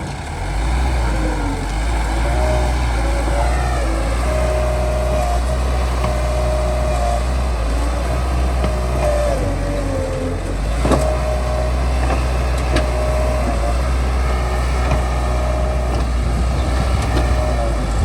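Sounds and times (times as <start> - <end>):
bulldozer diesel engine rumbling: 0.0 - 18.0.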